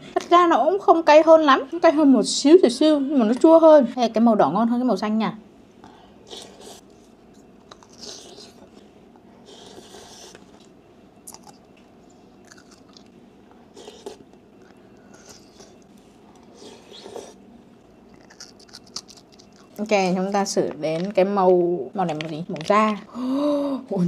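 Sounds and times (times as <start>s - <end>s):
chewing crunchy vegetable: 6.3s - 8.8s, 9.4s - 11.7s, 12.4s - 19.9s.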